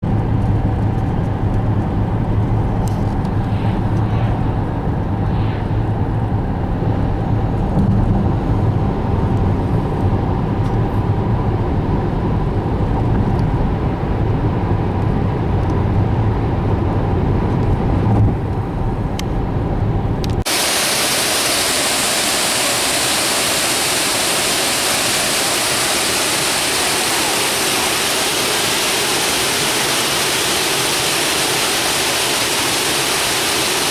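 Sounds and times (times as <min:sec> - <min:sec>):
car road noise and engine drone: 0:00.0 - 0:33.9
waterfall rushing: 0:20.5 - 0:33.9.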